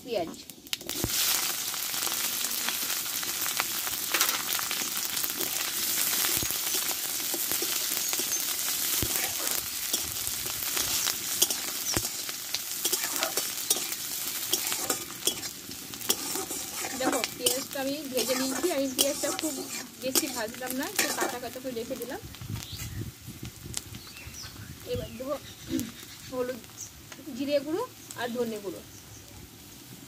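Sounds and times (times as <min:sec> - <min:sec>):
onion sizzling in hot oil: 0:00.0 - 0:30.0
metal spatula scraping a pan: 0:05.4 - 0:21.5.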